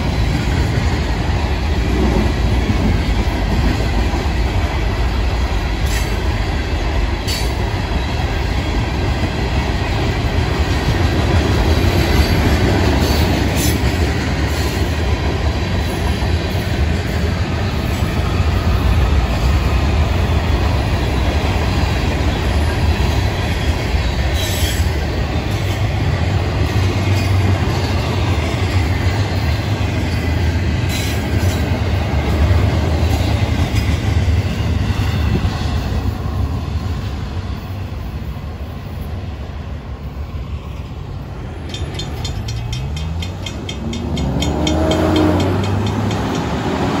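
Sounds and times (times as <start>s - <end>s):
freight cars rumbling past: 41.2s - 47.0s
truck engine revving: 43.8s - 47.0s.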